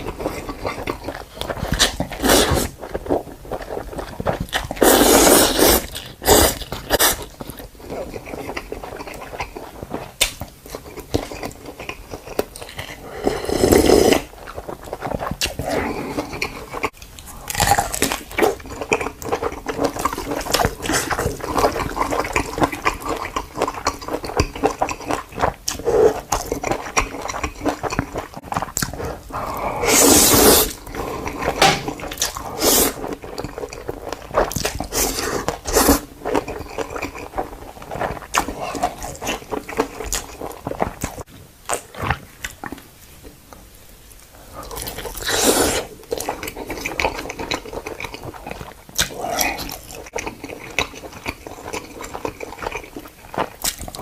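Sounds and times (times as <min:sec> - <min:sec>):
panda chewing and crunching food: 0:00.0 - 0:30.2.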